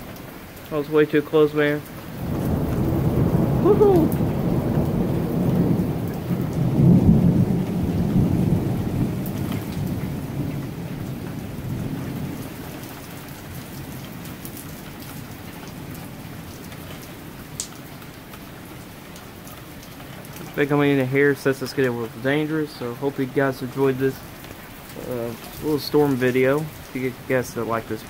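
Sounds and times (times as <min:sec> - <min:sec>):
steady rain: 0:00.0 - 0:28.0
thunder rumbling: 0:02.1 - 0:13.5.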